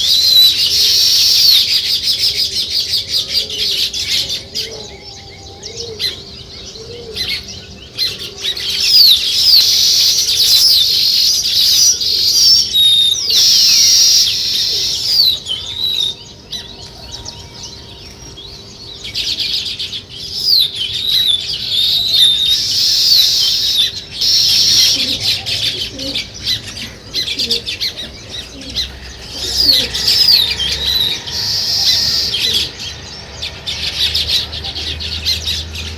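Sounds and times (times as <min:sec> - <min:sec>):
sparrows chirping and chattering: 0:00.0 - 0:35.9.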